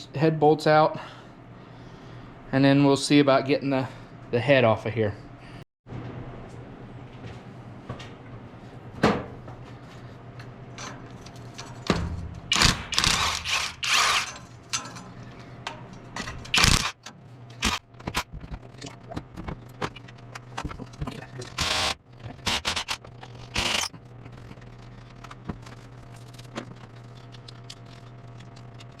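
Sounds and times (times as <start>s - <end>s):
metal tools clanking: 10.7s - 17.8s
ratchet wrench clicking: 12.5s - 14.4s, 16.5s - 17.0s, 21.6s - 23.9s.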